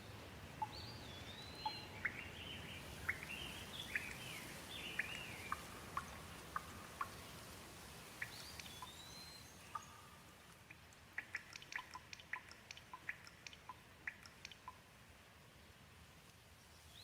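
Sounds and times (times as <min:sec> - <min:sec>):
gentle rain hiss: 0:00.0 - 0:17.0
raindrops ticking: 0:03.1 - 0:09.1, 0:09.7 - 0:14.9.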